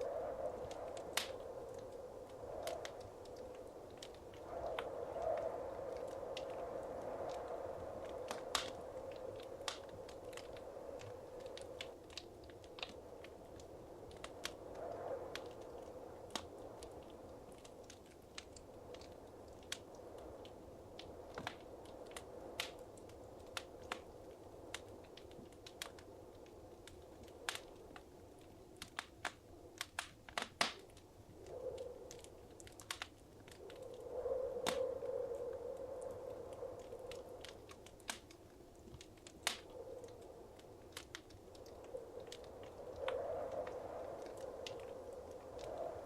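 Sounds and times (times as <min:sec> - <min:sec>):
rush of flame: 0:00.0 - 0:26.8
fire pops and snaps: 0:00.0 - 0:46.0.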